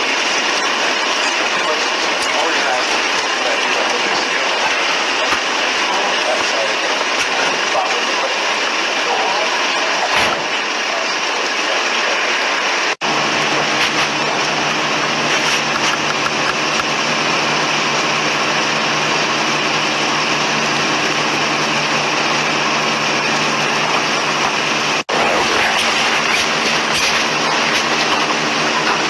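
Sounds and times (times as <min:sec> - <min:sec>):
loud outdoor noise: 0:00.0 - 0:29.0
engine hum: 0:13.0 - 0:29.0.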